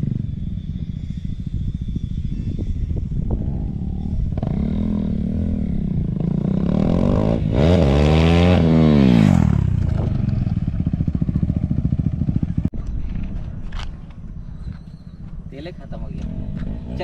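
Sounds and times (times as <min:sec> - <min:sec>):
motorcycle engine popping and revving: 0:00.0 - 0:14.2, 0:16.0 - 0:17.0.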